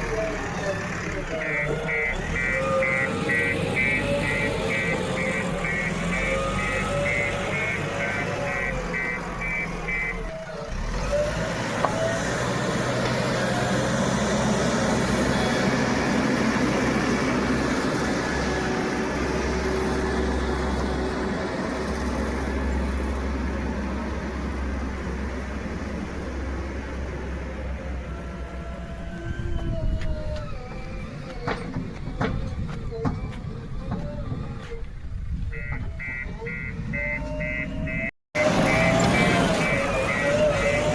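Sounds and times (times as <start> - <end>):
diesel engine working: 0.0 - 40.9
reversing alarm beeping: 1.3 - 10.4, 35.5 - 40.9.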